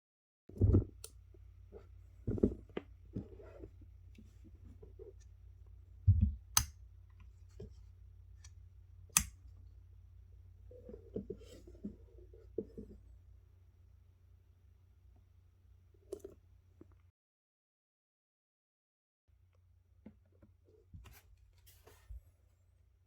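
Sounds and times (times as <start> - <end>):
dull handling thumps and scrapes: 1.7 - 5.2, 10.7 - 13.0.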